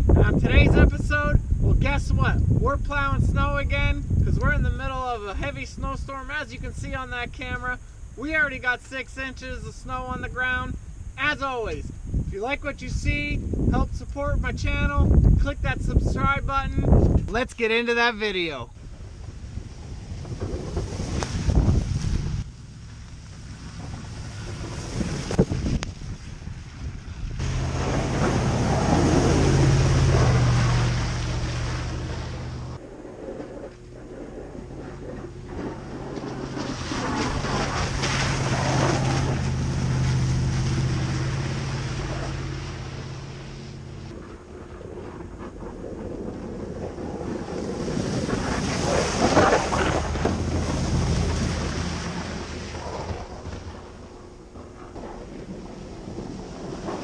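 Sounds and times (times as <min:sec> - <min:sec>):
truck engine under load: 0:18.8 - 0:57.0
rushing of pushed snow: 0:19.6 - 0:22.4, 0:23.4 - 0:26.4, 0:27.4 - 0:32.8, 0:35.4 - 0:44.0, 0:45.8 - 0:53.9.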